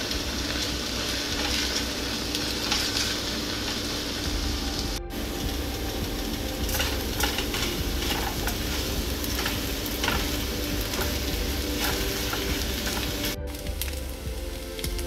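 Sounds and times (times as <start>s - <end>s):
egg and rice sizzling in pan: 0.0s - 15.0s
utensil scraping pan: 6.7s - 13.4s.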